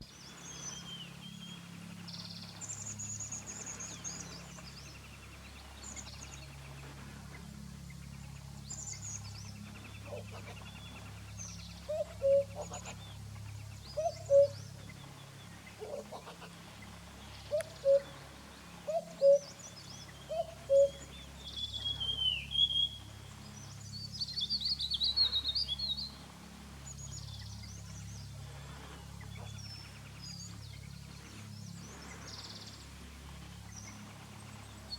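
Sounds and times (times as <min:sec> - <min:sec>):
low hooting bird calls: 0:07.4 - 0:34.9.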